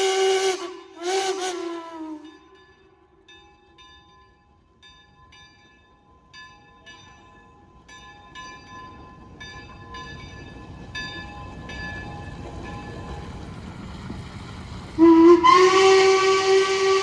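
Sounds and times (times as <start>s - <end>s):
moving train rumble: 0.0s - 3.5s, 6.9s - 17.0s
steam locomotive bell ringing: 0.0s - 13.4s, 15.0s - 17.0s.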